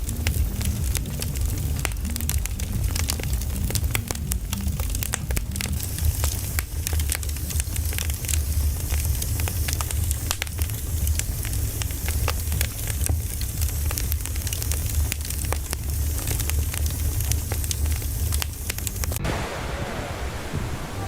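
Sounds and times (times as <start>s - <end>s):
firewood crackling and popping: 0.0s - 20.5s
low fire rumble: 0.0s - 21.0s.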